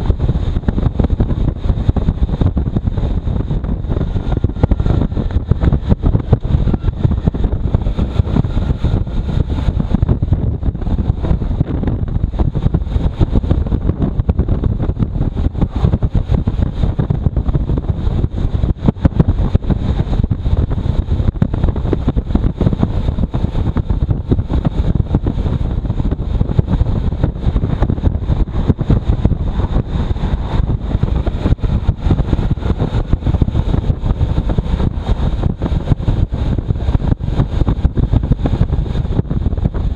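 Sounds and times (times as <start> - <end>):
motorcycle running: 0.0 - 39.9
wind buffeting microphone: 0.0 - 39.9
road noise: 25.4 - 37.0.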